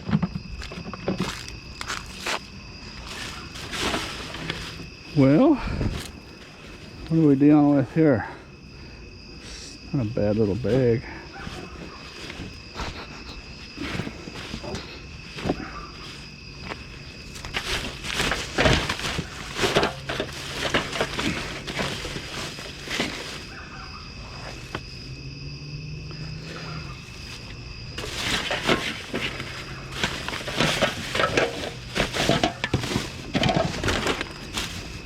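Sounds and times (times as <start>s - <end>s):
items knocking inside bag: 17.4s - 23.5s, 28.0s - 35.0s.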